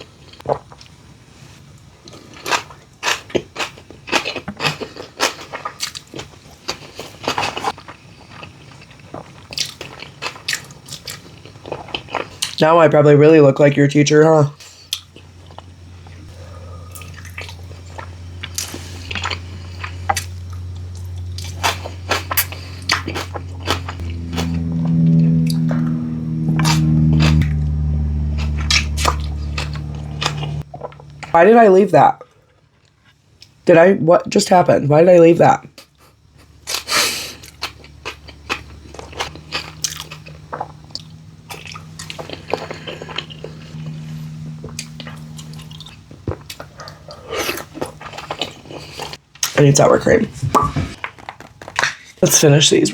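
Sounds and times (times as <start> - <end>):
wet chewing with smacking: 2.0 - 12.6, 35.8 - 44.0
steady low hum: 6.8 - 51.0.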